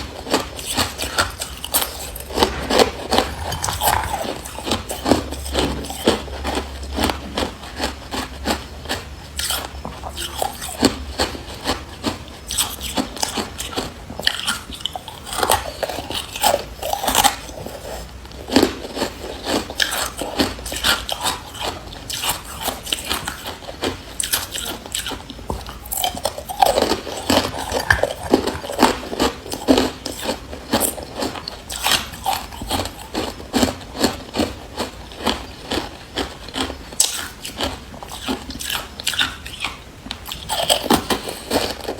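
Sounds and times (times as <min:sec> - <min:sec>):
person crunching ice: 0:00.7 - 0:05.0, 0:25.8 - 0:31.2.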